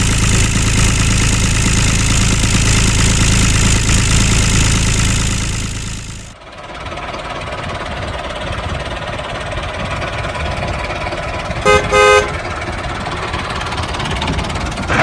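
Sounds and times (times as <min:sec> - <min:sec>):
tractor engine running: 0:00.0 - 0:15.0
horn tooting: 0:11.6 - 0:12.6.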